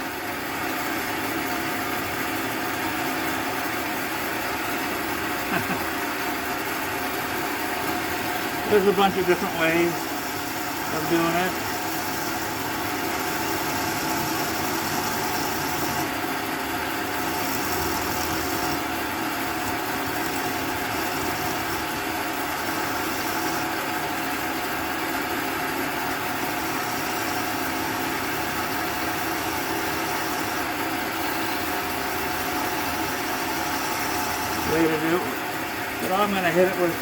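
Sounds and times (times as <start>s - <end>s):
small electric motor humming: 7.6s - 37.0s.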